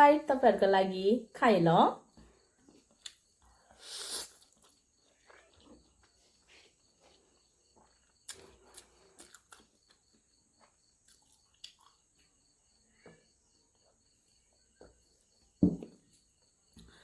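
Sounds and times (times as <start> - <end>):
wet chewing and crunching: 2.3 - 12.4
slurp: 3.8 - 6.7.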